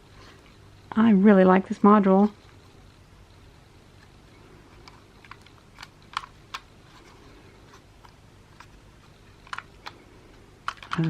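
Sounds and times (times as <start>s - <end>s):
light clicks of plastic parts: 4.0s - 11.0s.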